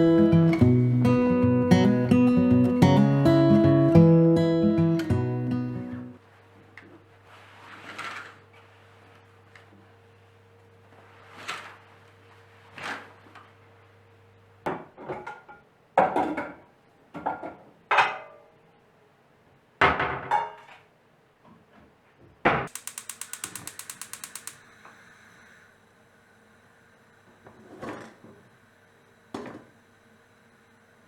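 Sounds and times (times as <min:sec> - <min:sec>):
fast run of ticks: 0:22.7 - 0:24.7.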